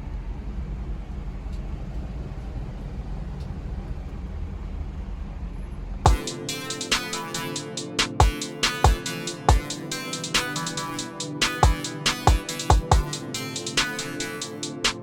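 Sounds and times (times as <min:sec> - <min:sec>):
music: 0:06.1 - 0:15.0.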